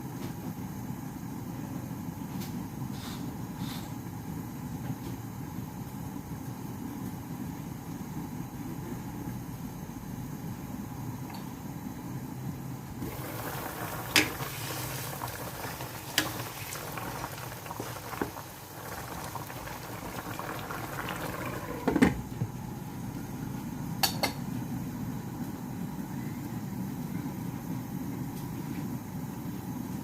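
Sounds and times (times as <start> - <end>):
stew bubbling in a pot: 13.0 - 23.1.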